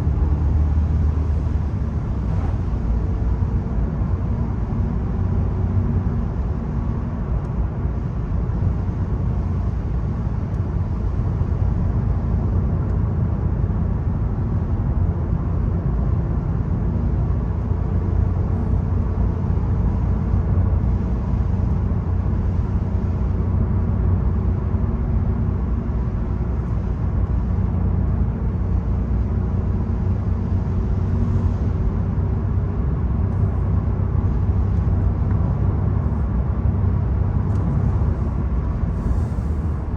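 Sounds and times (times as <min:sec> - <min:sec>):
car engine droning: 0:00.0 - 0:39.9
road noise: 0:00.0 - 0:39.9.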